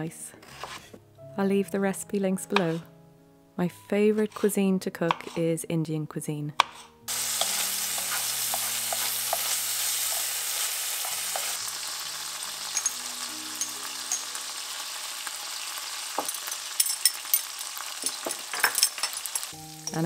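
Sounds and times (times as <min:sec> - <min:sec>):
tomatoes sizzling in oil: 0:07.1 - 0:20.0.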